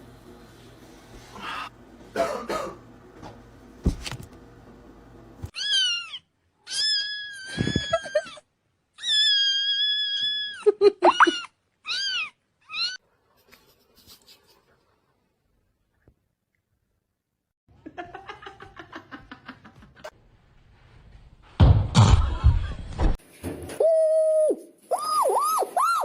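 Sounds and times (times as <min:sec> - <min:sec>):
kitten meowing: 0:05.6 - 0:08.0.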